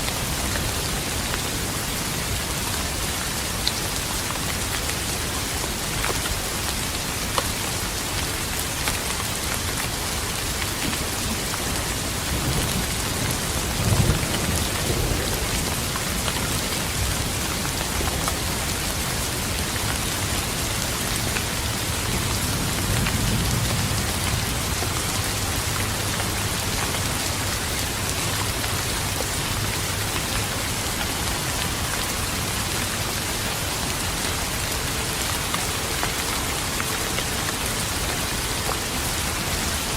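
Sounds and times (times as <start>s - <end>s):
steady rain: 0.0s - 39.9s
thunder rumbling: 12.2s - 19.1s.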